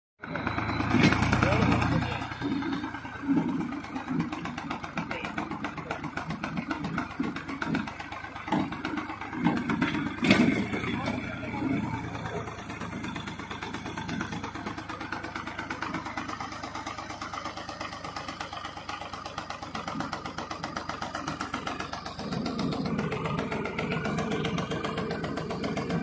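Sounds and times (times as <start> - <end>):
tractor diesel engine running: 0.2 - 26.0.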